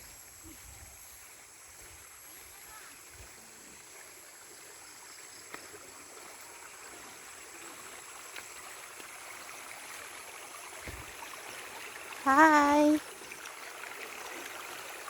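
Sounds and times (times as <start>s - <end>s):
stream flowing over stones: 1.0s - 15.0s.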